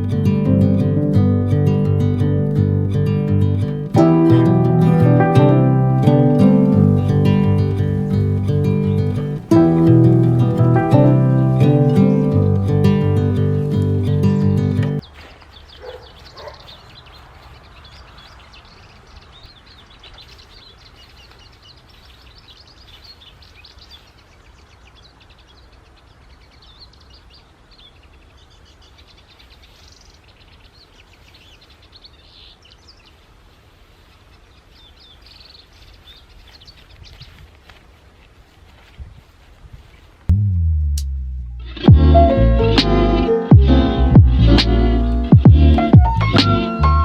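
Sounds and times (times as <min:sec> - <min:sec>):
steady low rumble: 0:00.0 - 0:15.0, 0:40.3 - 0:42.9, 0:43.5 - 0:46.9
small birds chirping: 0:00.0 - 0:37.5.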